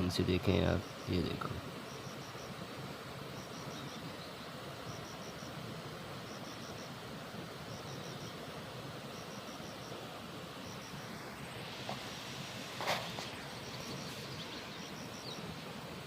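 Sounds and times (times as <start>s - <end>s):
outdoor rushing noise: 11.0s - 14.4s.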